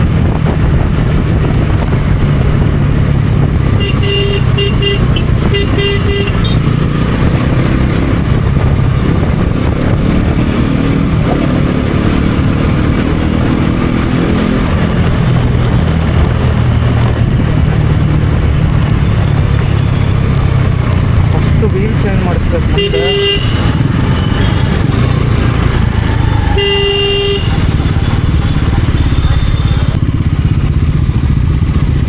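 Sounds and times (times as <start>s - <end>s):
motorcycle engine running: 0.0s - 32.0s
vehicle horn short beeps: 3.8s - 6.6s, 26.6s - 27.6s.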